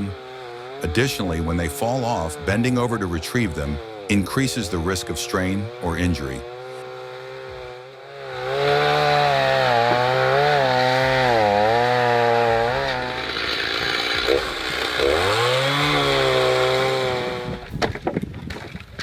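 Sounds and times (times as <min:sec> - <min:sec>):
chainsaw cutting logs: 0:00.0 - 0:19.0.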